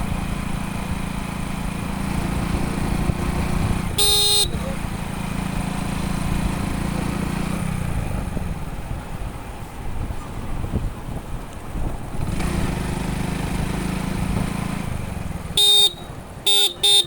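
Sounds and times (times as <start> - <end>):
motorcycle engine running: 0.0 - 17.0
road and wind noise: 0.0 - 17.0
motorcycle horn blast: 3.8 - 4.8, 15.4 - 17.0.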